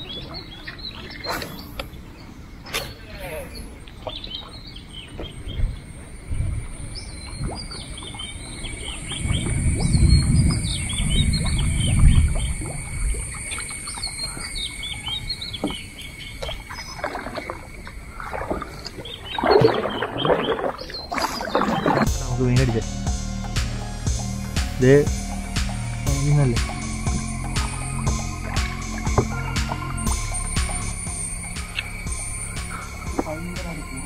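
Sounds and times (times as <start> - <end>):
small birds chirping: 0.0 - 34.0
low rumble: 5.5 - 13.8, 22.0 - 34.0.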